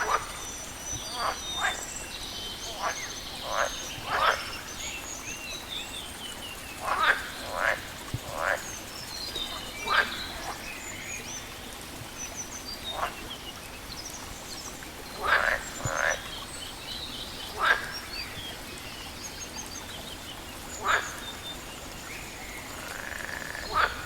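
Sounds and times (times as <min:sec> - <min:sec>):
birds chirping and trilling: 0:00.0 - 0:11.5, 0:20.8 - 0:24.0
frogs croaking: 0:00.0 - 0:24.0.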